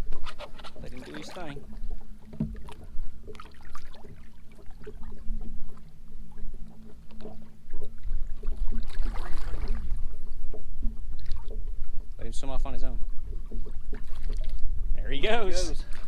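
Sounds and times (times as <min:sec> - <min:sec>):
boat engine low hum: 0:00.0 - 0:16.0
light knocks and clicks: 0:02.3 - 0:02.9.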